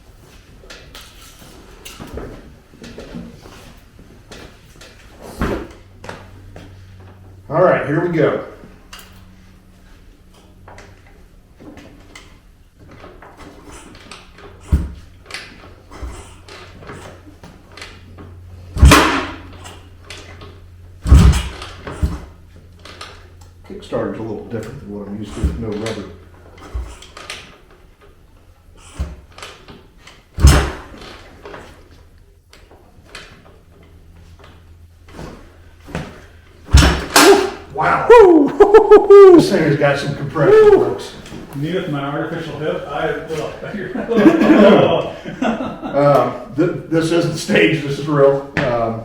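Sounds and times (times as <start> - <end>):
kickstarter clunking and clattering: 10.6 - 23.7, 24.5 - 37.5
heavy thump: 18.7 - 19.7, 21.0 - 22.4, 30.4 - 31.0, 36.0 - 37.6.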